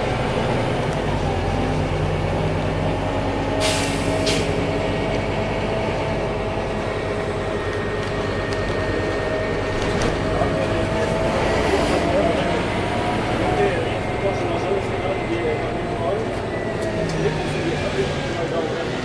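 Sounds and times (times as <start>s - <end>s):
bus engine drone: 0.0s - 19.0s
compressed air hiss: 3.6s - 4.5s.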